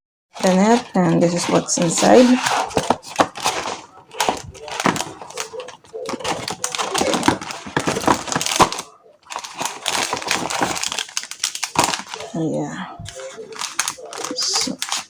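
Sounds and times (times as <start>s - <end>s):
paper and packaging crinkling: 0.4s - 15.0s.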